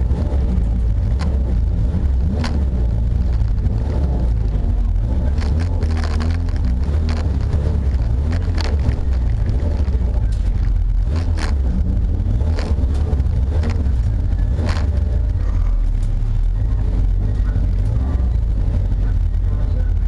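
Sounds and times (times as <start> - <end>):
car engine rumble: 0.0 - 20.0.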